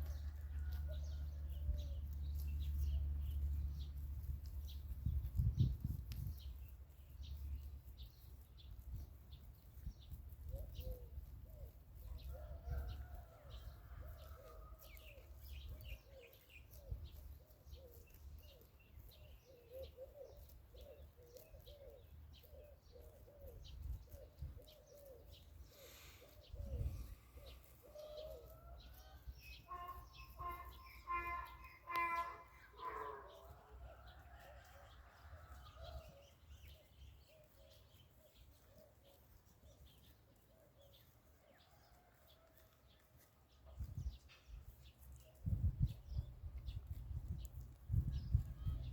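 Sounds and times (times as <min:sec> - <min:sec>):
wind rumble on microphone: 0:00.0 - 0:11.0, 0:23.5 - 0:24.8, 0:26.4 - 0:27.5, 0:43.7 - 0:48.9
small birds chirping faintly: 0:00.0 - 0:46.4
pigeons cooing: 0:10.5 - 0:13.1, 0:15.9 - 0:18.6, 0:19.2 - 0:39.2
loud pitched bird call: 0:29.6 - 0:33.5.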